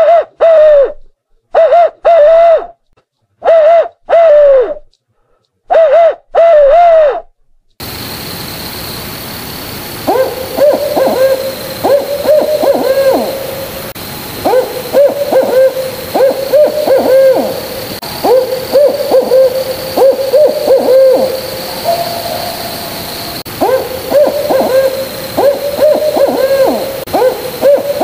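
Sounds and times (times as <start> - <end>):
owl hooting: 0.0 - 2.7, 3.4 - 4.9, 5.7 - 7.2, 9.9 - 28.0
faint high whine: 7.8 - 28.0.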